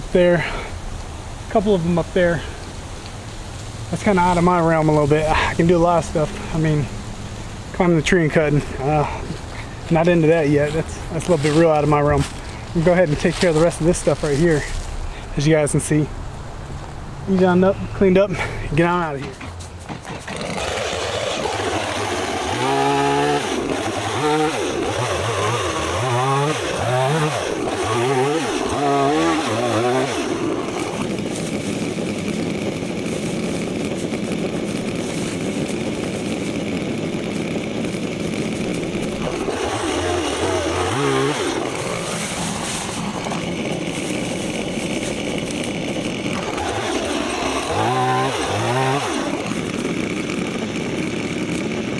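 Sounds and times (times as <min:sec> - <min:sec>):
chainsaw revving: 0:03.9 - 0:16.0, 0:17.4 - 0:51.9.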